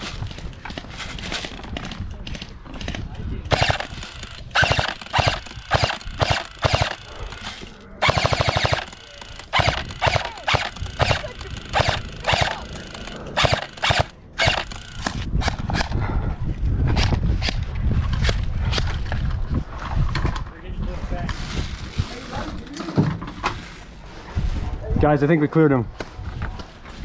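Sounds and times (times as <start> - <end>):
airsoft guns firing: 3.5 - 15.3.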